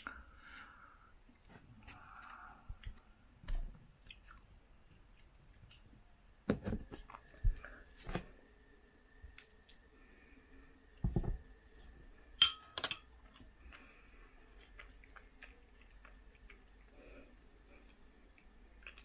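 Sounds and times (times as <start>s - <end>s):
dishes and cutlery clinking: 12.4s - 13.1s.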